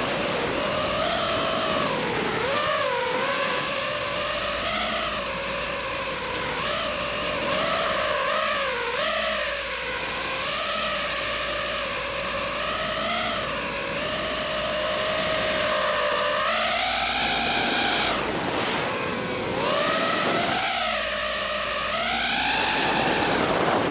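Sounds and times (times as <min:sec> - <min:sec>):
drone motors whining: 0:00.0 - 0:23.9.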